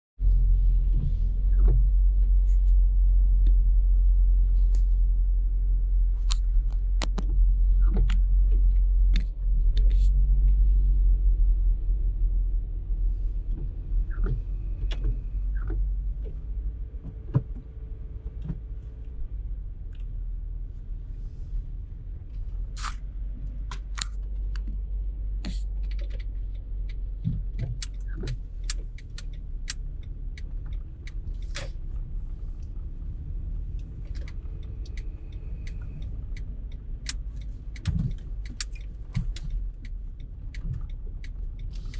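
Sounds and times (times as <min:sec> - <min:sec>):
car road and engine rumble: 0:00.2 - 0:41.9
small clicks and ticks: 0:25.4 - 0:32.8, 0:33.5 - 0:41.9.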